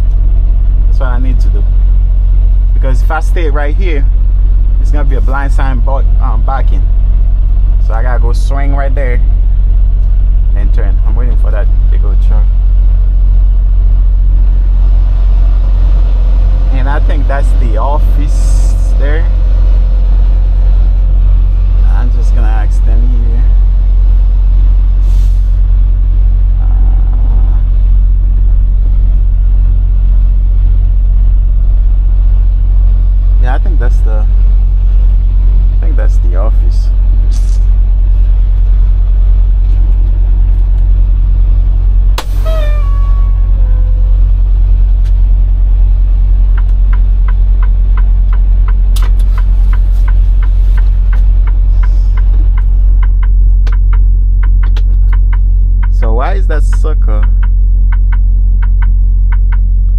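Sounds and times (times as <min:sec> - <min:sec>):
truck diesel engine drone: 0:00.0 - 0:59.9
light even ticking: 0:46.3 - 0:59.9.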